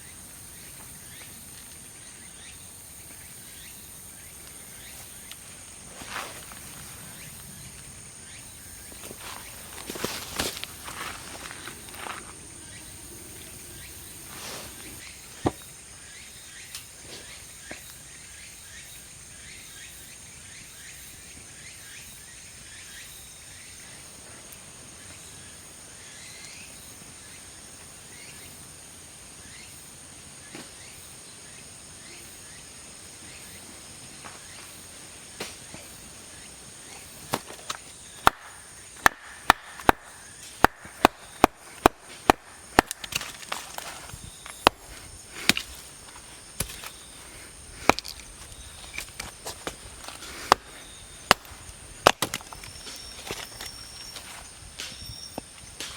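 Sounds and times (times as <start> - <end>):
high-pitched insect drone: 0.0 - 16.8, 44.0 - 55.9.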